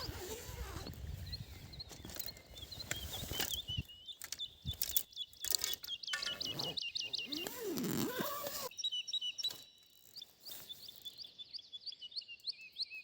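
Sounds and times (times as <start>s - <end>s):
songbirds chirping: 0.0s - 13.0s
clicks and crunches of footsteps: 1.7s - 8.4s.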